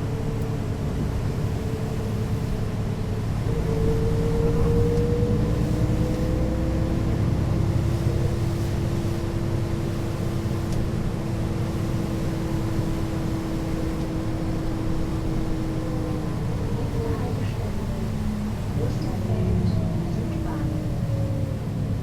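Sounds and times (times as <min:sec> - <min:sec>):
bus diesel engine rumble: 0:00.0 - 0:22.0
higher whine: 0:03.2 - 0:07.4.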